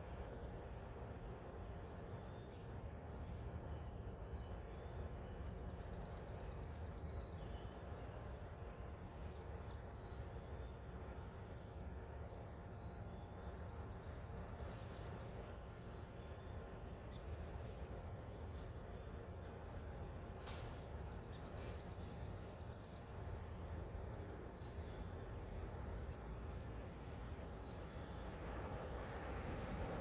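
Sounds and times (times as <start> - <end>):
songbird trilling and chirping: 12.7 - 15.4, 20.8 - 23.1.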